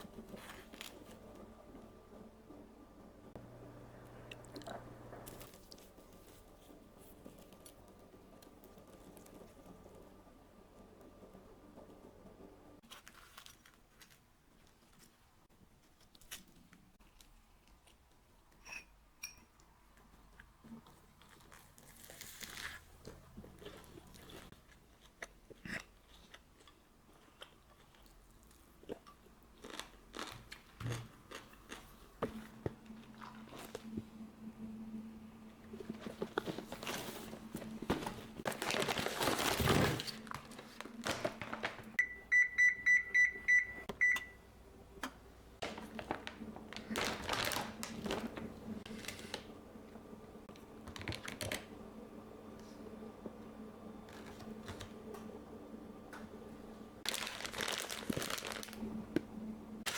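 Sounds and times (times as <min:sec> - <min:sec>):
steady low hum: 0:00.0 - 0:12.8, 0:31.7 - 0:38.6, 0:58.6 - 0:59.9.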